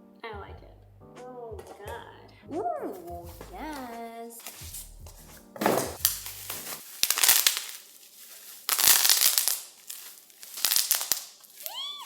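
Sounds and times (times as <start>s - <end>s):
packaging crinkling: 3.7s - 4.8s, 5.4s - 12.0s.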